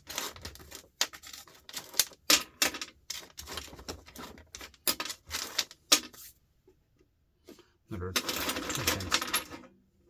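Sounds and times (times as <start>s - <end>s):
metal nuts and bolts clinking: 8.2s - 9.7s.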